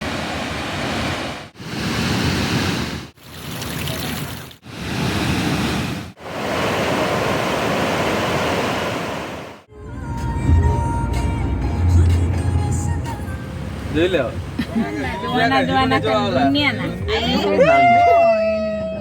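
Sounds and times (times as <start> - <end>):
rushing water: 0.0 - 9.7, 12.9 - 17.3.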